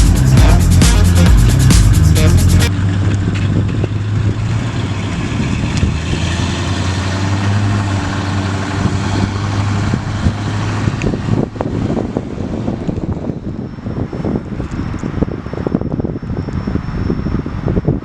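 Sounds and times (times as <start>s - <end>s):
engine running low hum: 0.0s - 18.0s.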